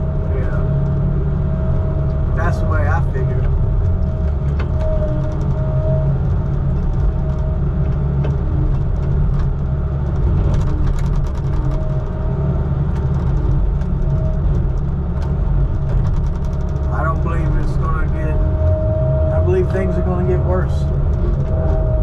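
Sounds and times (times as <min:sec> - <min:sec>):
heavy vehicle engine drone: 0:00.0 - 0:22.0
faint rattling clicks: 0:12.9 - 0:17.4.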